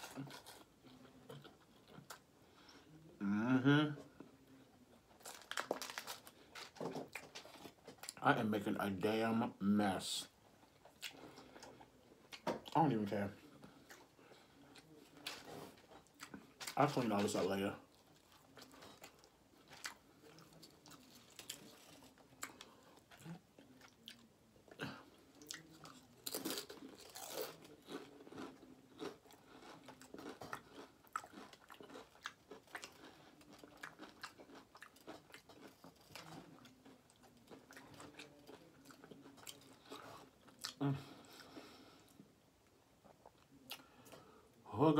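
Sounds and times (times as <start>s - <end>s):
crisp crunches of chips: 5.2s - 8.2s, 25.4s - 40.8s
faint chewing: 10.4s - 44.6s.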